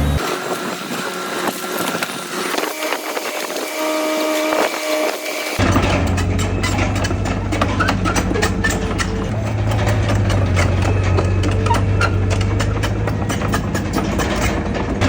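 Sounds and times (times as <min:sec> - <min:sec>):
heavy diesel machinery engine: 0:00.0 - 0:15.0
clatter of sharp knocks: 0:05.6 - 0:15.0.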